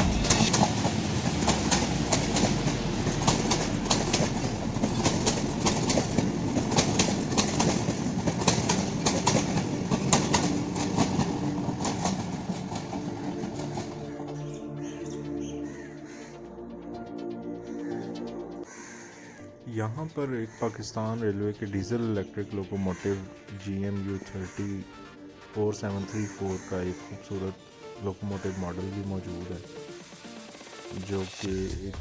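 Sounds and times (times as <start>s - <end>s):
train wheels clattering: 0.0s - 14.6s.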